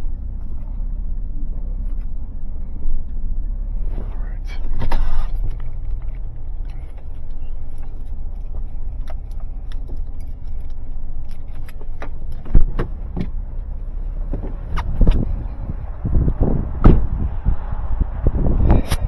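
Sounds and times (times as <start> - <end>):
motor vehicle rumble: 0.0 - 19.0
keys jangling: 6.8 - 12.5
sharp thump: 16.8 - 17.2.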